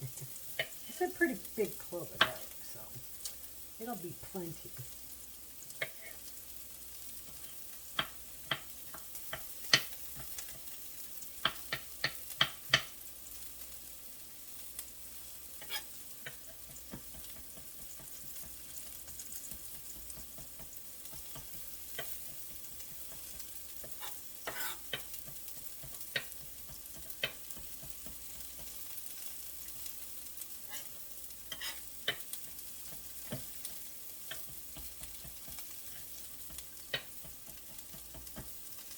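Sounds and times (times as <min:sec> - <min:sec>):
vegetables sizzling in a frying pan: 0:00.0 - 0:38.9
knife tapping on cutting board: 0:08.0 - 0:10.7, 0:11.4 - 0:12.9, 0:16.2 - 0:28.8, 0:34.3 - 0:35.7, 0:36.5 - 0:38.6.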